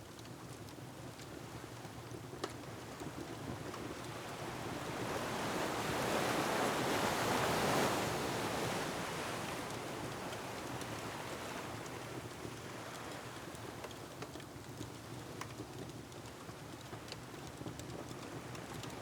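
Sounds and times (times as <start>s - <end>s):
ocean wave surging and washing back: 4.9s - 11.7s.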